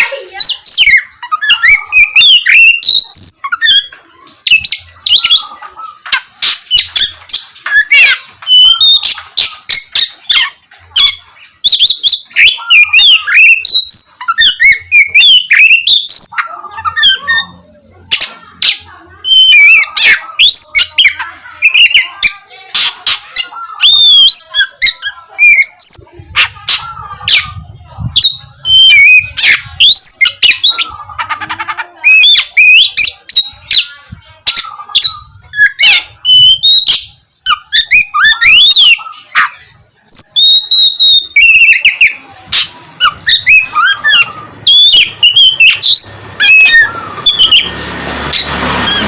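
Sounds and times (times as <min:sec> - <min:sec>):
bird singing whistles and clicks: 0:06.1 - 0:17.3, 0:40.1 - 0:47.7.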